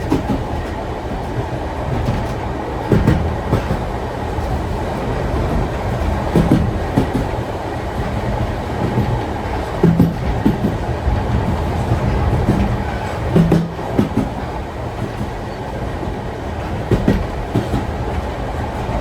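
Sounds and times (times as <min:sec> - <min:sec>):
train carriage rumbling: 0:00.0 - 0:19.0
wheel knocks over rail joints: 0:08.0 - 0:15.4.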